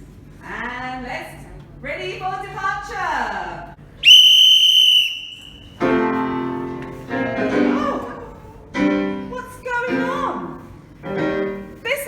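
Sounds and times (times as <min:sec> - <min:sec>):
whistle blown: 0:04.0 - 0:05.8
piano chords: 0:05.8 - 0:12.0.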